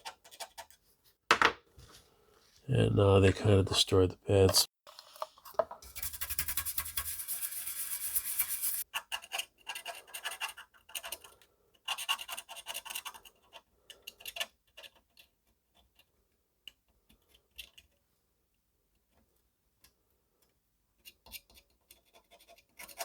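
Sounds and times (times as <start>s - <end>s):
scratching on a circuit board: 5.8s - 11.3s.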